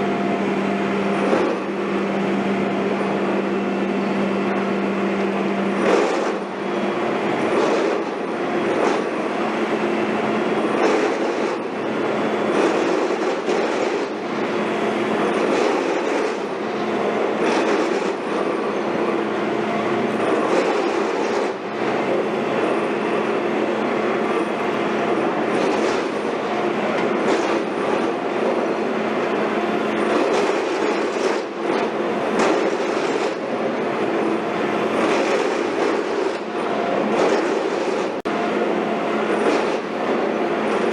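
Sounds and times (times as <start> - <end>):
heavy construction machinery running: 0.0 - 40.9.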